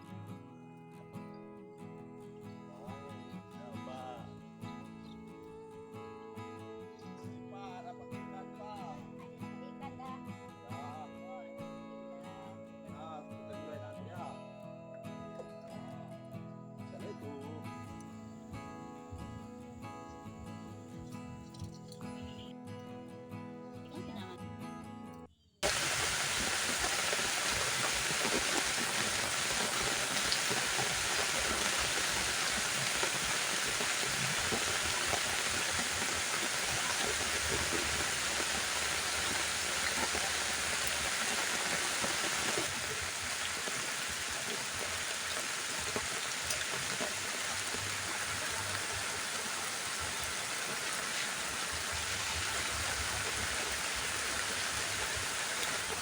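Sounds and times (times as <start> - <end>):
heavy rain falling: 25.6 - 56.0.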